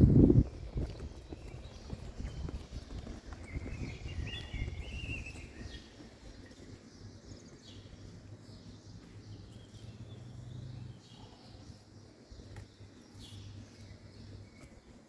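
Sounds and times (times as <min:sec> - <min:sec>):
small bird chirping: 0:00.9 - 0:14.8.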